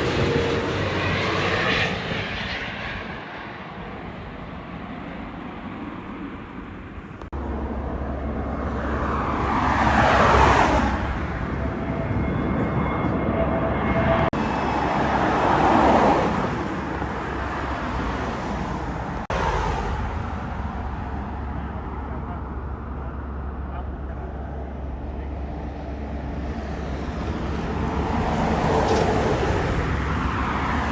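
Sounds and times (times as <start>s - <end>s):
vehicles passing close by: 0.0s - 30.9s.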